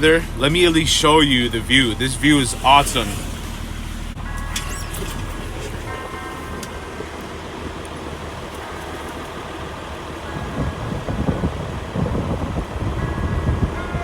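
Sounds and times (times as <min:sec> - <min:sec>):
steady low rumble: 0:00.0 - 0:14.0
wind buffeting microphone: 0:05.2 - 0:14.0.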